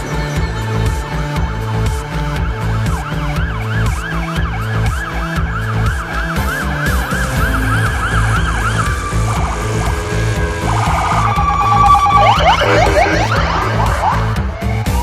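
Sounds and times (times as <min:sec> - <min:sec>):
music with steady beat: 0:00.0 - 0:15.0
siren wailing: 0:04.6 - 0:15.0.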